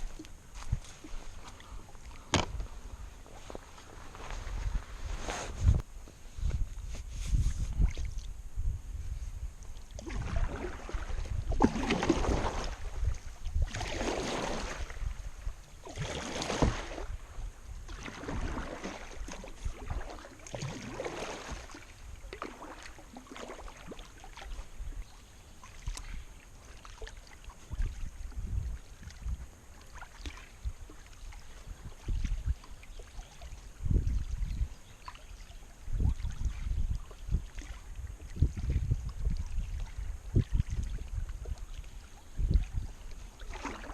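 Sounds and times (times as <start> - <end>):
paddle splashing in water: 9.8 - 43.9.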